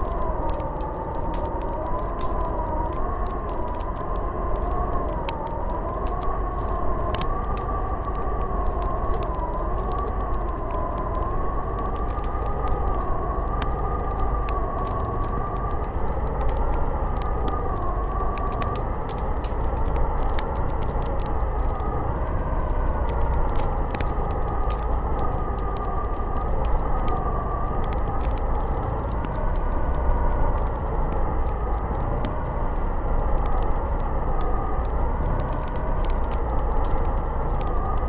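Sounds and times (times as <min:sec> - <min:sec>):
light scattered ticks: 0:00.0 - 0:38.0
wind howling and whistling: 0:00.0 - 0:38.0.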